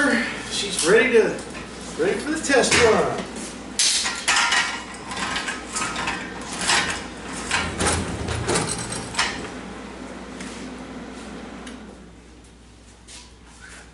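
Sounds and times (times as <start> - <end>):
metal dolly rolling on casters: 4.1 - 9.5.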